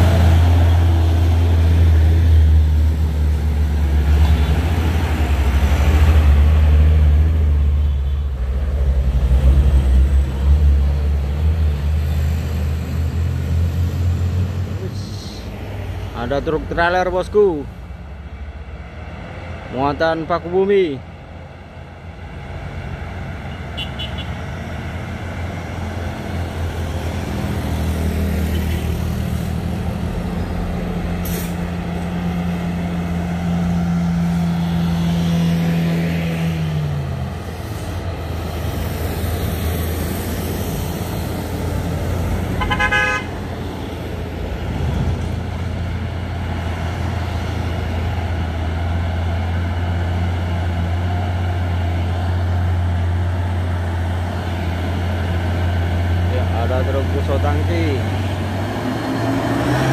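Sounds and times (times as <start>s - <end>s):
diesel truck engine labouring: 0.0s - 59.9s
truck horn toot: 23.8s - 24.4s, 42.6s - 43.3s.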